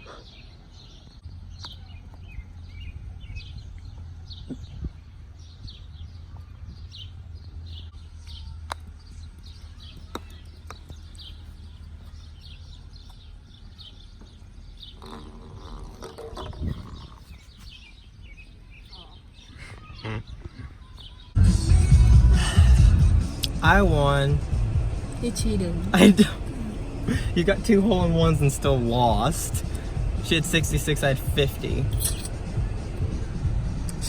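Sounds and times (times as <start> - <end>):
small birds chirping: 0.0 - 21.4, 23.4 - 34.0
low rumble: 21.4 - 34.0.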